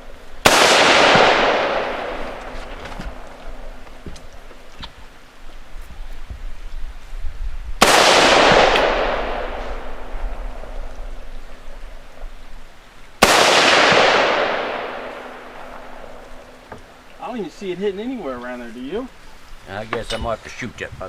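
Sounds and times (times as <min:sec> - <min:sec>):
rifle shots with rolling echo: 0:00.4 - 0:03.8, 0:07.8 - 0:12.2, 0:13.2 - 0:16.6.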